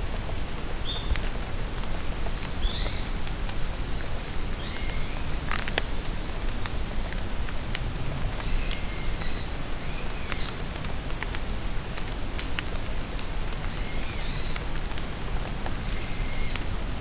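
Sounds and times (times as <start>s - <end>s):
rain falling in forest: 0.0s - 17.0s
songbird calls and chirps: 0.8s - 6.5s, 13.6s - 14.6s, 15.8s - 16.7s.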